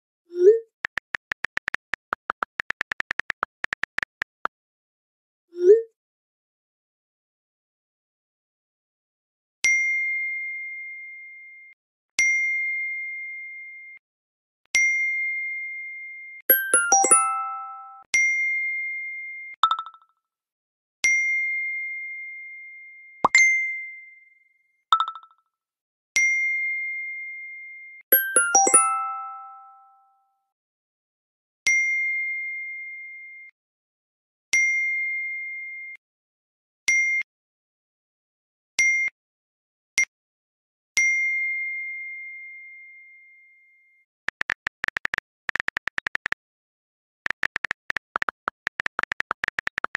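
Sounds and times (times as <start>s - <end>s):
bell-like chime dinging: 16.5s - 18.0s, 28.1s - 30.2s.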